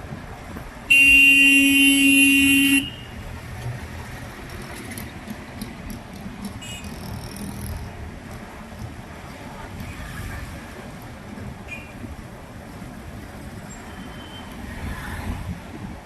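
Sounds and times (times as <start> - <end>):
road traffic noise: 0.0 - 16.0
vehicle horn honk: 0.9 - 3.1.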